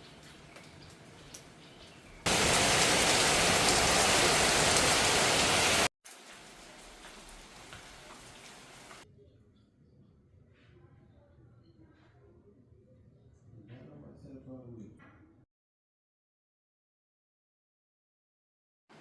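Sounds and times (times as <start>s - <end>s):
rushing water: 2.3s - 9.0s.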